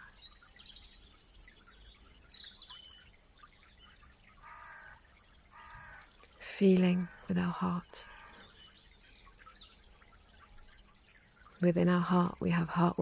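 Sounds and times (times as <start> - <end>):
faint songbird twittering: 0.0 - 6.4, 8.0 - 11.6.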